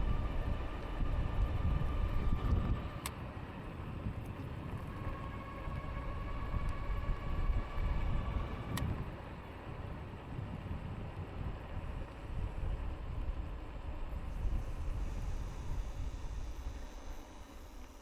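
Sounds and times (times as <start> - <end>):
wind buffeting microphone: 0.0 - 18.0
electric motor whine: 4.4 - 9.1, 14.1 - 18.0.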